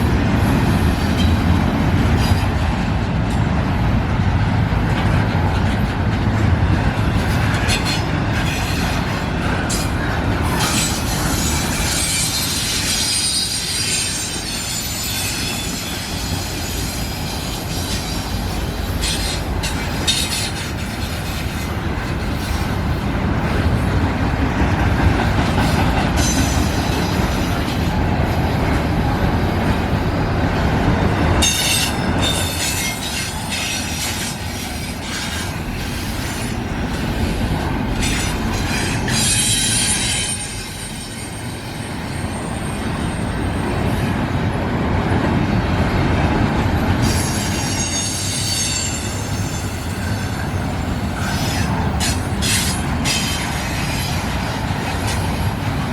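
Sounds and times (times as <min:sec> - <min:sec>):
freight train rumbling by: 0:00.0 - 0:55.9
train wheels squealing: 0:07.4 - 0:22.8, 0:25.6 - 0:28.0, 0:31.4 - 0:44.2, 0:46.7 - 0:55.9.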